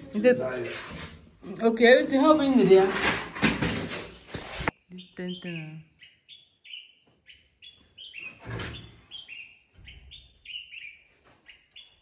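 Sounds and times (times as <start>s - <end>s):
birds chirping: 4.7s - 12.0s.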